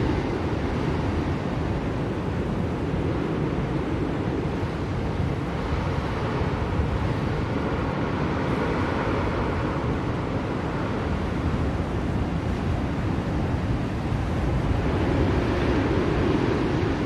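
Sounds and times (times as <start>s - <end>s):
blizzard wind rushing: 0.0s - 17.0s.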